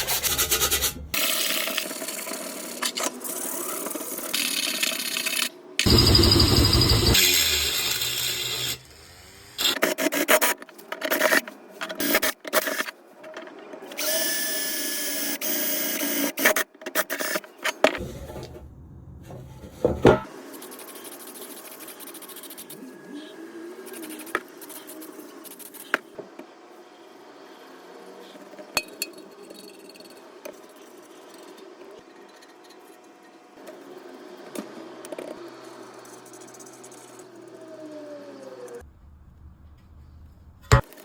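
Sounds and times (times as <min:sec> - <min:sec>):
power drill running: 0:05.8 - 0:09.7
knocks and clatter: 0:17.9 - 0:18.7, 0:19.3 - 0:20.3.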